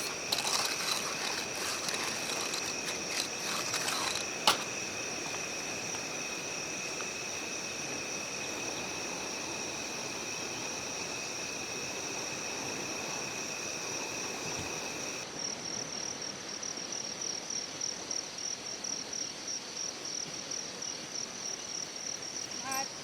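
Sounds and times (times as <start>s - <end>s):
insects trilling: 0.0s - 15.2s, 20.8s - 23.0s.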